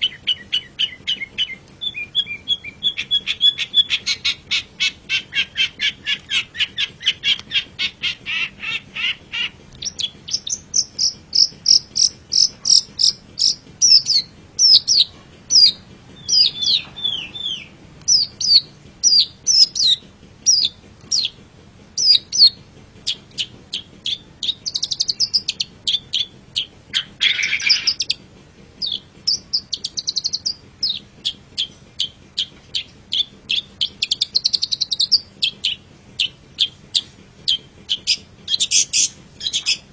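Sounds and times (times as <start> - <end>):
bird singing rapid varied song: 0.0 - 21.4, 22.0 - 28.2, 28.8 - 39.9
harsh rasping bird call: 0.0 - 21.4, 22.0 - 28.2.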